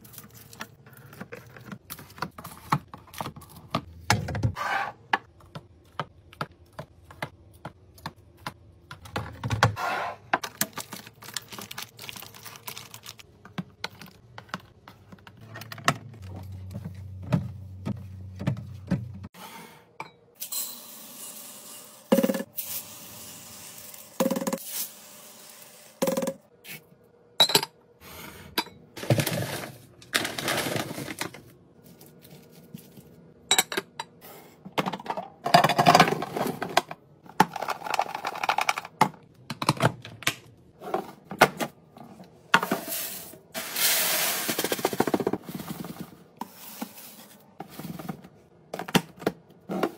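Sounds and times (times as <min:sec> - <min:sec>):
packaging rustling: 0:10.6 - 0:13.2.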